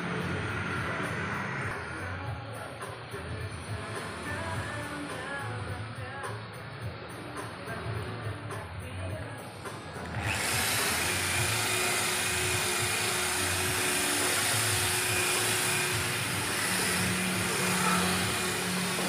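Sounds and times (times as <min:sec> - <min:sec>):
power tool hissing: 0:10.0 - 0:19.0.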